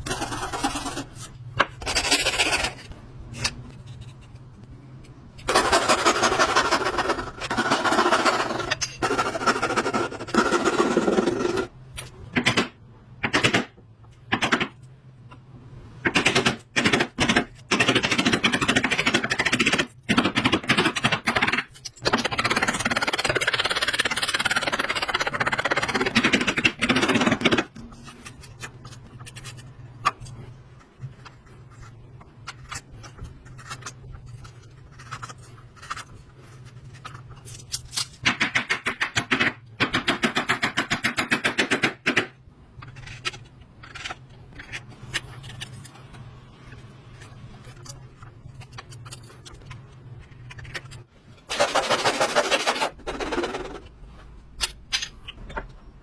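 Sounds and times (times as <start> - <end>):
rapid tool strokes on wood: 51.5 - 53.5.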